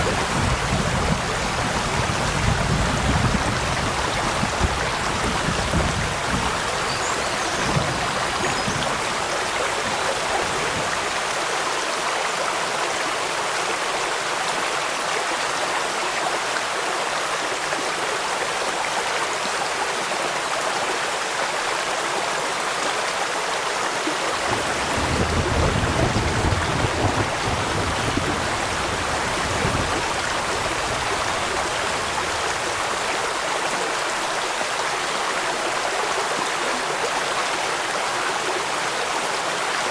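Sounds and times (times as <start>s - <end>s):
rain falling: 0.0s - 15.0s, 23.6s - 39.9s
flowing water rushing: 0.0s - 39.9s.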